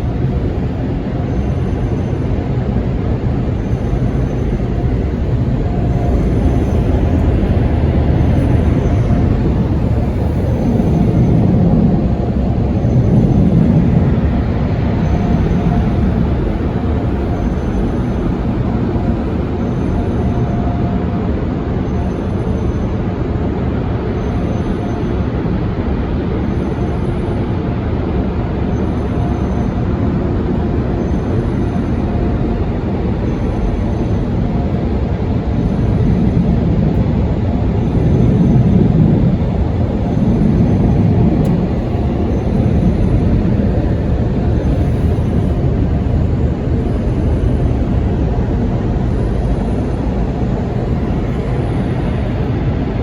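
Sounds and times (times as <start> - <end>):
car wash rushing noise: 0.0 - 20.2, 34.2 - 53.0.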